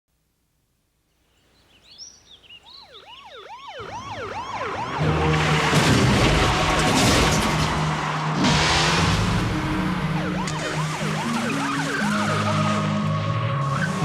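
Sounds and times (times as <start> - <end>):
police sirens yelping: 2.6 - 14.0
car engine running hard: 4.8 - 14.0.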